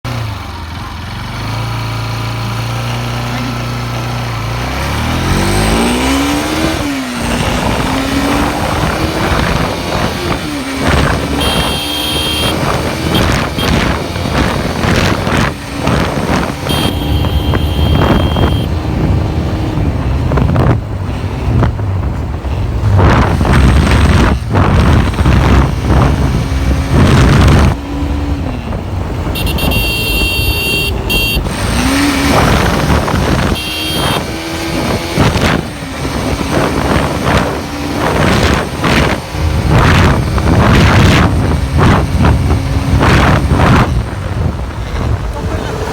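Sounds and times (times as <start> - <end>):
motorcycle engine running: 10.2 - 20.1, 27.3 - 34.8
short high-pitched tones: 11.4 - 13.8, 16.7 - 18.7.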